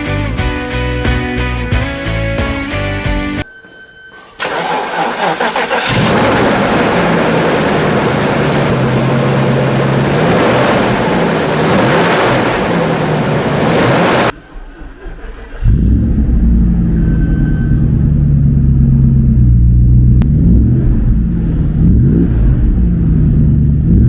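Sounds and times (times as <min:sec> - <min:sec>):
car engine idling: 0:05.2 - 0:11.8, 0:12.4 - 0:24.0.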